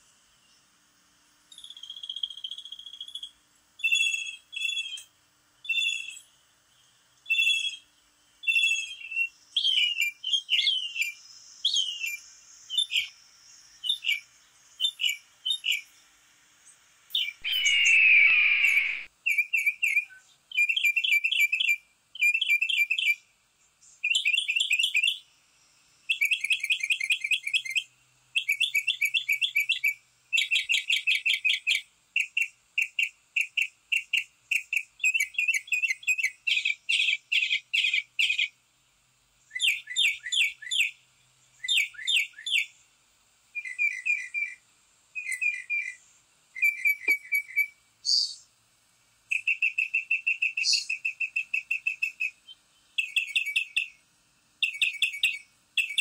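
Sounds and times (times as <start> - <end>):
songbirds chirping and trilling: 0.0 - 48.6, 49.2 - 56.0
harsh bird call: 17.2 - 19.1.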